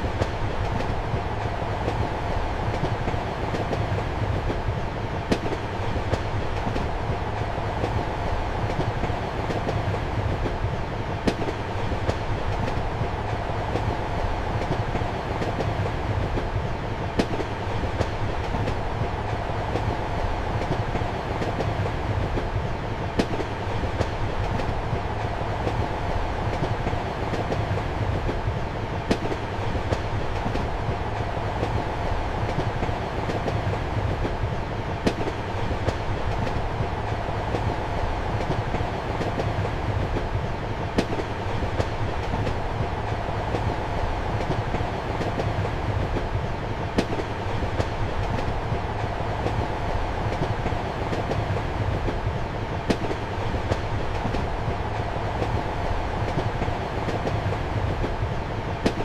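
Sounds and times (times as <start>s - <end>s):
train rumble and hum: 0.0s - 59.0s
train wheels clicking over rail joints: 0.0s - 59.0s.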